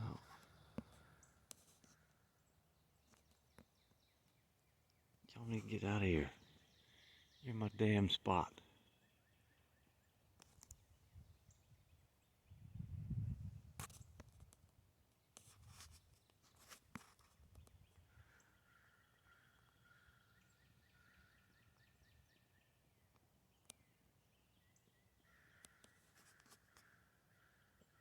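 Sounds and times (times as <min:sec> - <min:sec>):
faint rustles and clicks: 0:00.0 - 0:04.4, 0:13.6 - 0:18.0, 0:25.6 - 0:27.0
distant bird calls: 0:00.0 - 0:12.8, 0:15.1 - 0:28.0.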